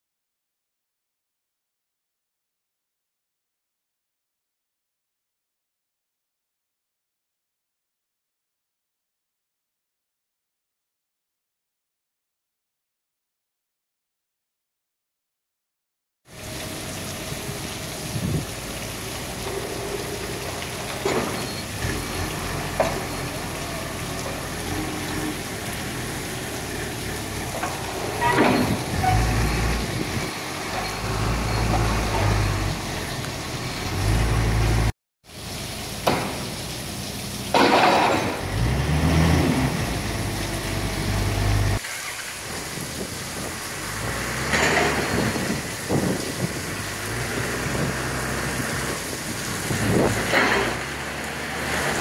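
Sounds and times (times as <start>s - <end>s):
rain hiss: 16.3s - 52.0s.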